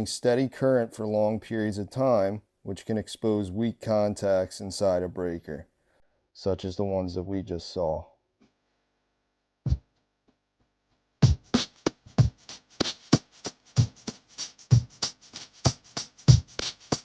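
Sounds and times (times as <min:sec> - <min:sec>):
electronic drum beat: 0:11.2 - 0:17.0.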